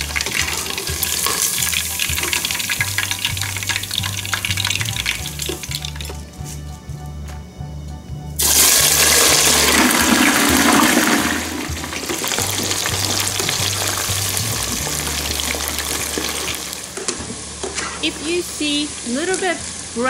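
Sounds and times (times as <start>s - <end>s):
food sizzling in pan: 0.0s - 6.2s, 8.4s - 20.0s.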